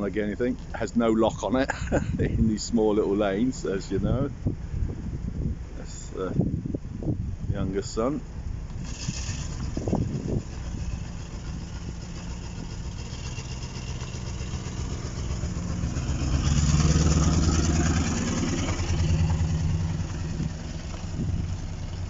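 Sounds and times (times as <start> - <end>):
leaking exhaust blowing: 0.0 - 22.0
car engine running: 8.2 - 22.0.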